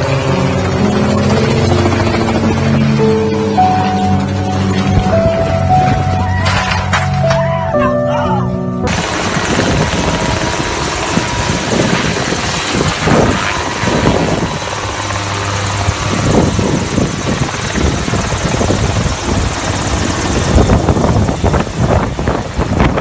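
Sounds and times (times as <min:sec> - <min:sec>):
helicopter rotor and engine: 0:00.0 - 0:05.9, 0:08.9 - 0:23.0.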